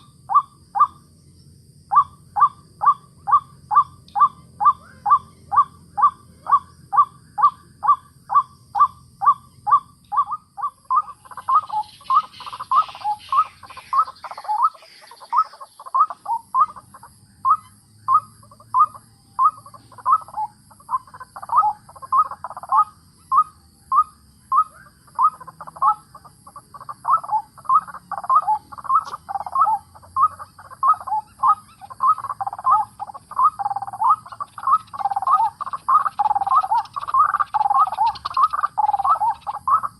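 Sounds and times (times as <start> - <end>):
waterhen calling: 0.0 - 1.0, 2.0 - 39.9.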